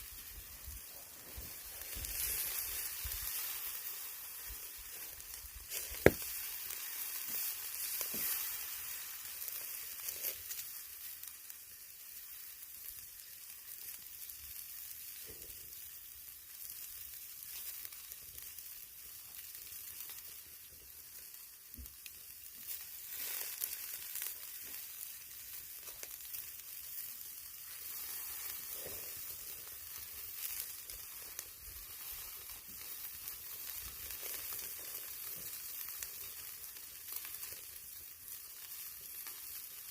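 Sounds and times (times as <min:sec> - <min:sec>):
meat sizzling on a grill: 0:00.0 - 0:39.9
fat popping: 0:05.7 - 0:06.6.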